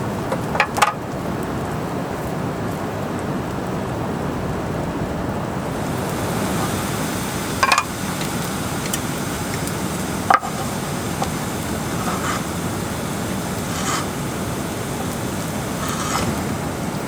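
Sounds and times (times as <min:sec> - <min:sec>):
water rushing: 0:03.2 - 0:17.0.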